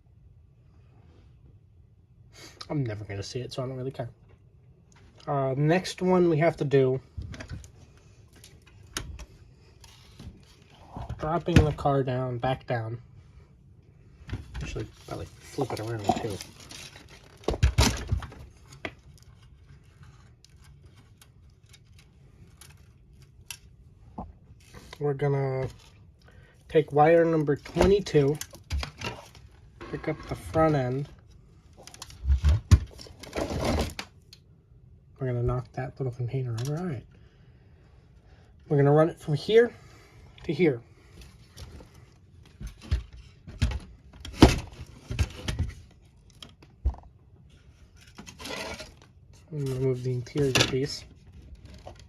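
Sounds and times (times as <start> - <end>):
plastic parts knocking and clicking: 15.7 - 19.1, 42.4 - 47.1.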